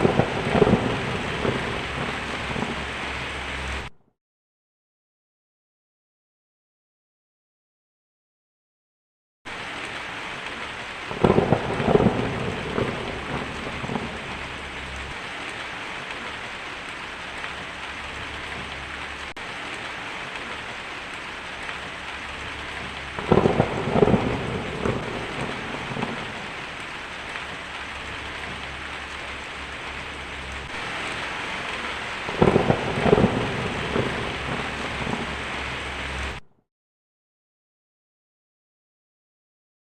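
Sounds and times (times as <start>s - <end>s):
crackling thunder: 0.0s - 3.9s, 9.5s - 36.4s
steady rain falling: 0.0s - 3.9s, 9.5s - 36.5s.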